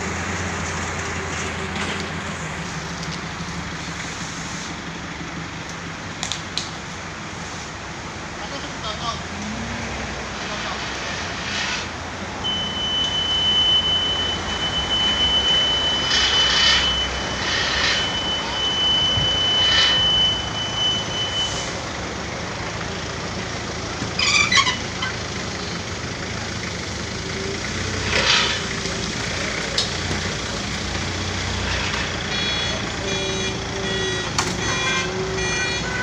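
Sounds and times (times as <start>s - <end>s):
garbage truck running: 0.0s - 36.0s
road and traffic noise: 0.0s - 36.0s
hissing or rattling bursts: 10.1s - 12.4s, 16.0s - 18.5s
high whine: 10.3s - 22.3s.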